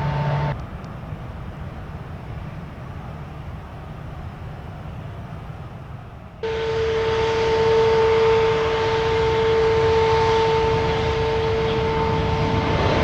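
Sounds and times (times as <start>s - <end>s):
jet airliner engines: 0.0s - 13.0s.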